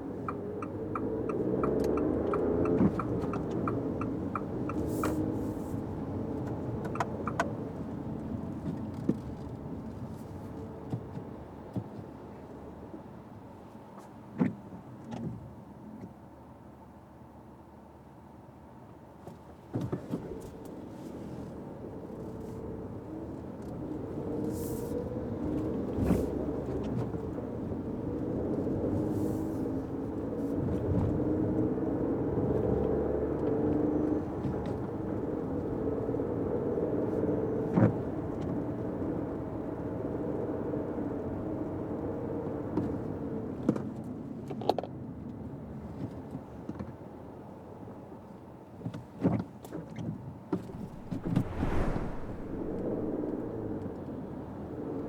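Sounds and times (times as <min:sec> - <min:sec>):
car engine and road noise: 0:00.0 - 0:10.2, 0:50.6 - 0:55.0.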